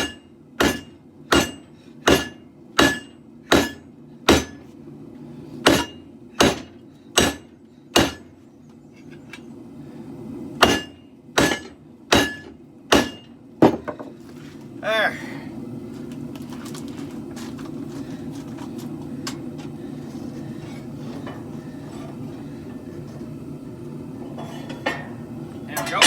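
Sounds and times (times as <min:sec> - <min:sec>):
hammer striking metal on anvil: 0:00.0 - 0:04.6, 0:05.6 - 0:08.3, 0:10.6 - 0:13.8.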